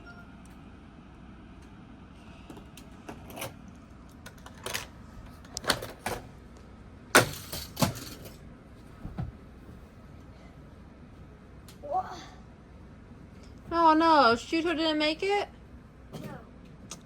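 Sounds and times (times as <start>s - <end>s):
toy cars clattering on track: 7.2s - 8.4s.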